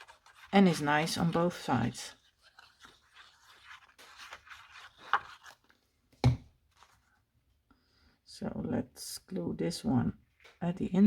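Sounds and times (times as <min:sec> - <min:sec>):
paper rustling and sliding: 0:00.0 - 0:05.8, 0:06.7 - 0:07.1.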